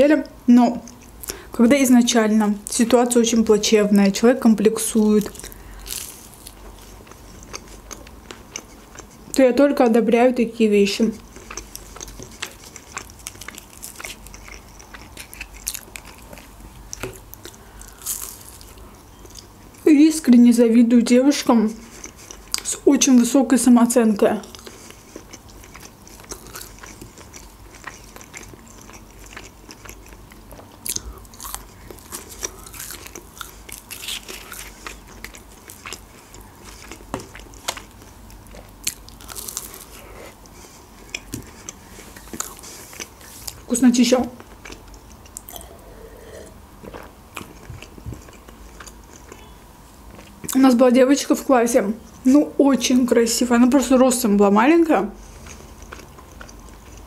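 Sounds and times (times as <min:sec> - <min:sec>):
crunchy chewing: 0:04.8 - 0:09.4, 0:11.2 - 0:19.9, 0:21.7 - 0:22.8, 0:24.4 - 0:43.7, 0:44.4 - 0:50.6, 0:55.2 - 0:57.0.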